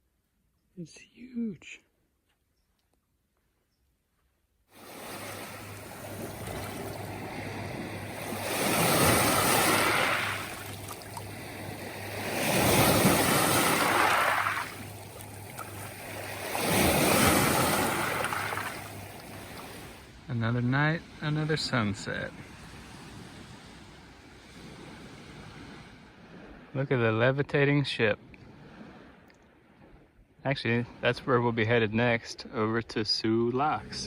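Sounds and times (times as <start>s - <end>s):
waves washing onto beach: 4.7s - 26.8s.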